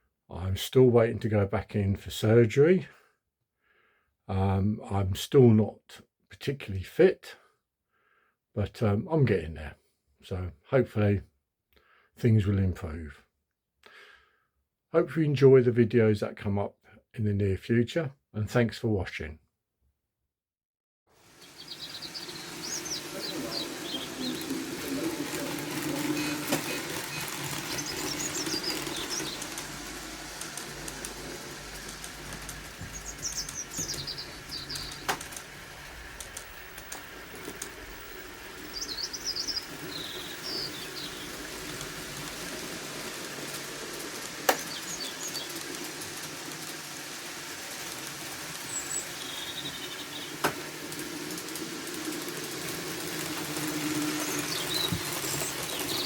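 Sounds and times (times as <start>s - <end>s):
small birds chirping: 21.2s - 47.2s, 47.8s - 56.0s
sharp clicks: 30.4s - 35.5s, 44.4s - 46.5s.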